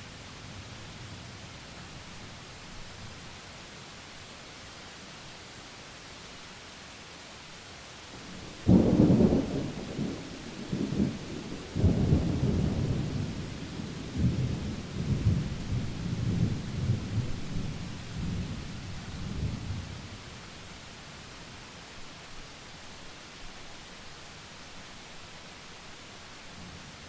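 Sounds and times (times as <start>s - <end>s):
steady rain: 0.0s - 27.0s
thunder clap and rumble: 8.3s - 18.6s.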